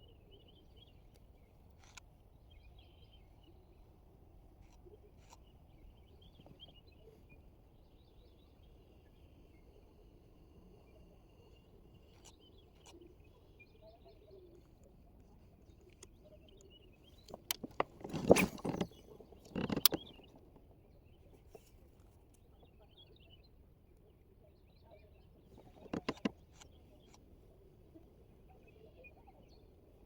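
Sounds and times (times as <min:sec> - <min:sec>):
faint bird chirping: 0:00.0 - 0:30.0.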